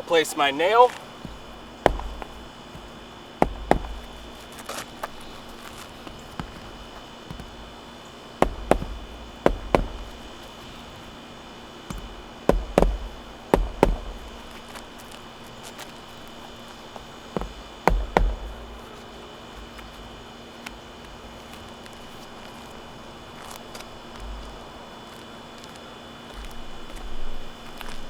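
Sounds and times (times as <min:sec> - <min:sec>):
hammer striking nails: 0:01.1 - 0:15.1, 0:17.3 - 0:19.1.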